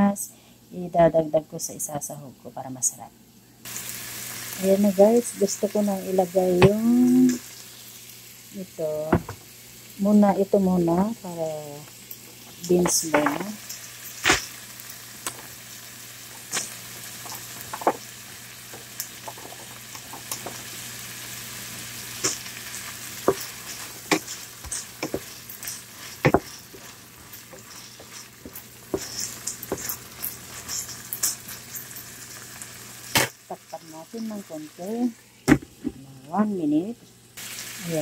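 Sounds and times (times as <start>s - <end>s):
meat sizzling in a pan: 3.6s - 35.9s, 37.2s - 38.0s
wooden spatula scraping a pan: 22.2s - 31.5s.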